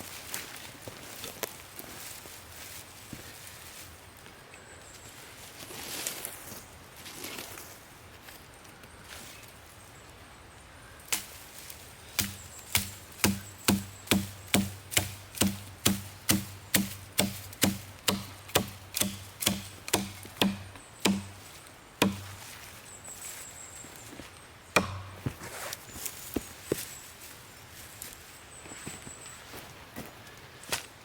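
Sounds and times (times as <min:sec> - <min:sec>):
wood being chopped: 0:12.2 - 0:22.4, 0:24.8 - 0:25.5.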